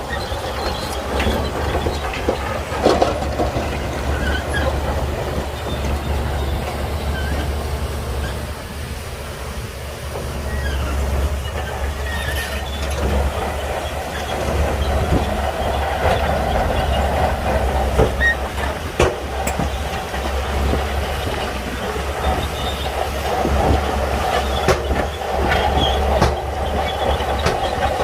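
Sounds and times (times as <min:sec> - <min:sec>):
bulldozer diesel engine running: 0:00.0 - 0:28.0
steel tracks clanking and rattling: 0:00.0 - 0:28.0
sharp knocks: 0:24.5 - 0:26.6.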